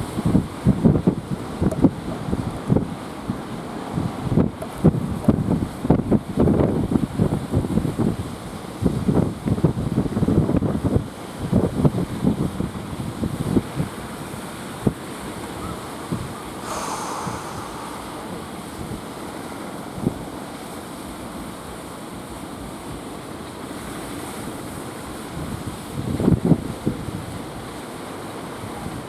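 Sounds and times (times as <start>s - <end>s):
wind buffeting microphone: 11.6s - 20.2s
sea waves washing: 14.6s - 20.0s
brief hiss: 16.6s - 18.8s.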